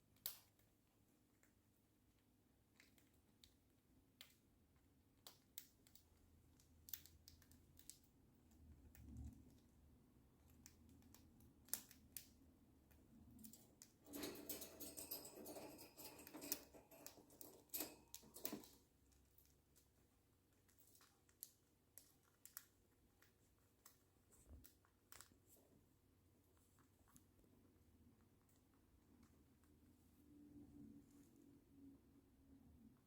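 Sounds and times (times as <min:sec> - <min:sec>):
bird beak clicking and tapping: 0:05.1 - 0:09.7, 0:10.4 - 0:19.9
rustling in cage: 0:13.3 - 0:19.0.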